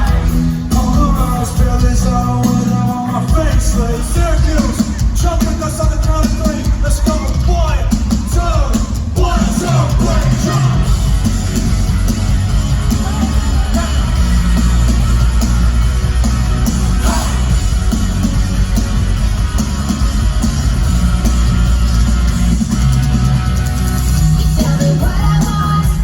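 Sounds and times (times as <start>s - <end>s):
loud live rock music: 0.0s - 26.0s
person singing or shouting: 6.8s - 10.9s, 16.9s - 17.6s.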